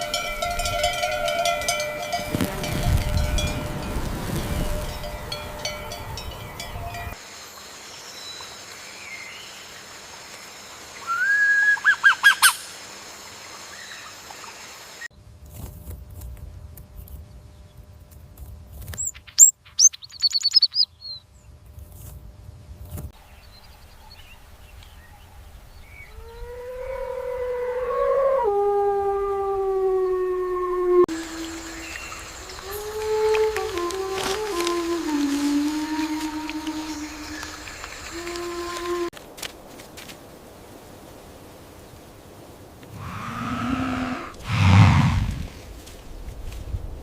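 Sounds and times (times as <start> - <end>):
bird calls and chirps: 18.9 - 21.5
long howl: 26.1 - 39.1, 42.9 - 45.6.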